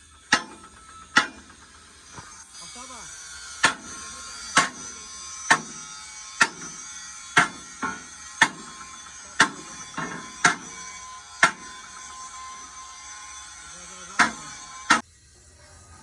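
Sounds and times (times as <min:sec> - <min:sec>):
hammer blows on steel: 0:03.5 - 0:12.9, 0:13.8 - 0:15.0.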